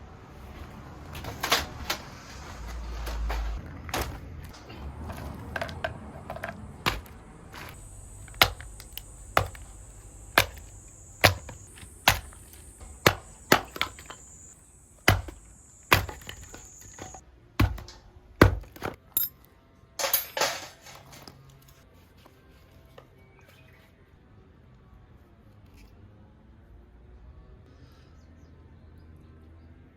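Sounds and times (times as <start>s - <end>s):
hatchet chopping wood: 6.2s - 19.0s.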